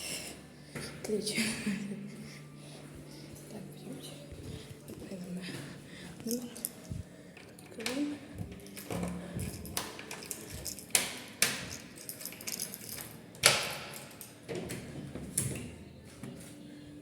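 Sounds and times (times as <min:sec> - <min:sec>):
keys jangling: 0:06.2 - 0:07.8, 0:08.6 - 0:14.4.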